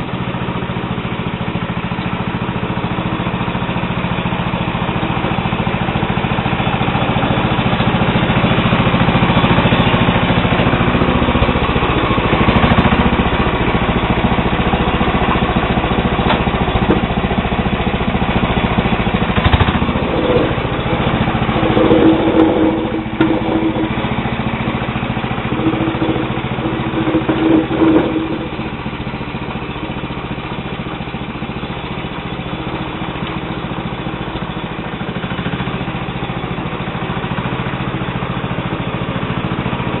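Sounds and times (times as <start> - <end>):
engine knock: 0.0 - 40.0
garden tractor engine running: 0.0 - 40.0
short whines: 19.7 - 24.5, 25.2 - 28.7.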